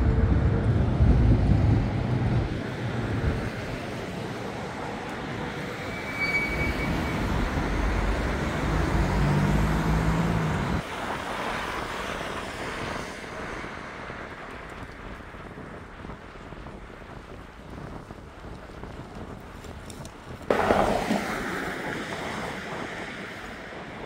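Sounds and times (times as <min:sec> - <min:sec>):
engine hum: 0:00.0 - 0:24.0
traffic rumble: 0:00.0 - 0:24.0.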